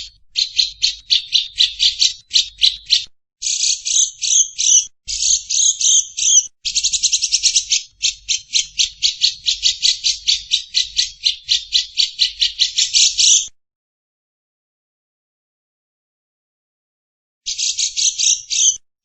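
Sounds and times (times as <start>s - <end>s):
bird harsh chattering calls: 0.0s - 13.5s, 17.5s - 18.8s.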